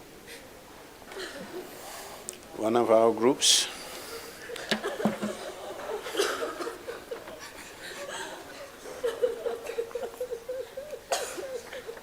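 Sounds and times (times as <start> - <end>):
man sobbing: 6.2 - 12.0.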